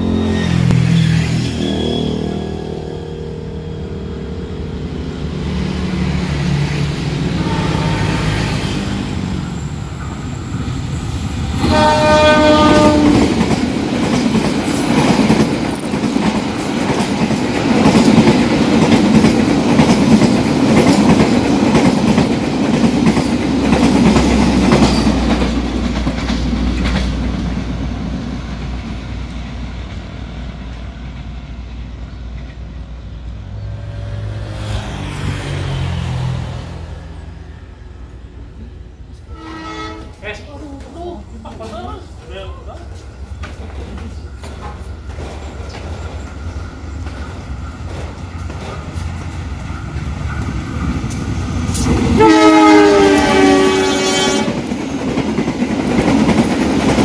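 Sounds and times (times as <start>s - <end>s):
locomotive horn: 0.0s - 9.1s, 11.6s - 13.4s, 39.2s - 40.2s, 52.1s - 54.7s
train passing at speed: 0.0s - 57.0s
wheels clattering on rails: 11.5s - 28.8s, 40.8s - 52.2s, 54.3s - 57.0s.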